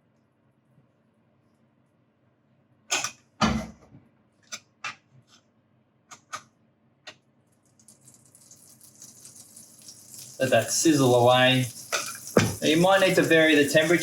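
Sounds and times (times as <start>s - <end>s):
spoon knocking against pan: 12.3s - 12.7s.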